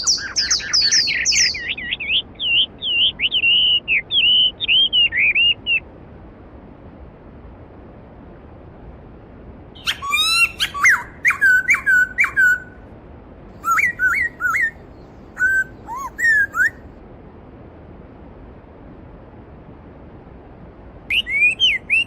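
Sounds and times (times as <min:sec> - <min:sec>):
songbird singing: 0:00.0 - 0:05.8, 0:09.8 - 0:12.8, 0:13.6 - 0:16.9, 0:21.1 - 0:22.0.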